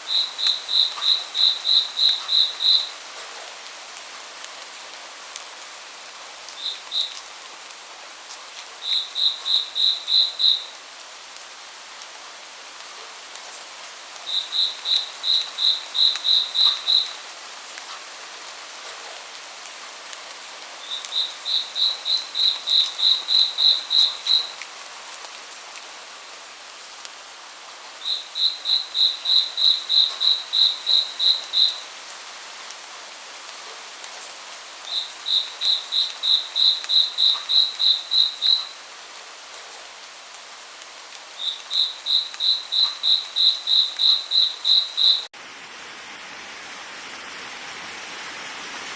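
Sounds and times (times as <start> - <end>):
steady rain hiss: 0.0 - 48.9.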